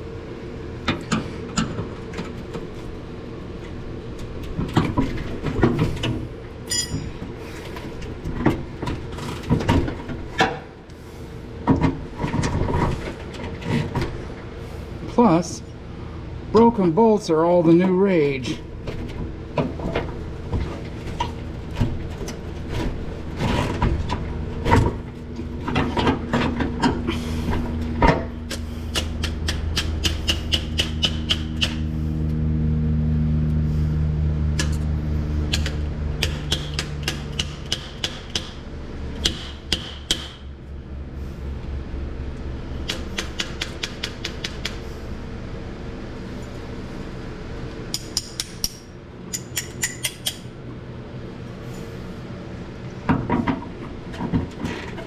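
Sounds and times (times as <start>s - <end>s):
steady mechanical hum: 0.0s - 55.0s
sharp metal knocks: 28.0s - 31.8s, 35.5s - 38.6s, 39.2s - 40.4s.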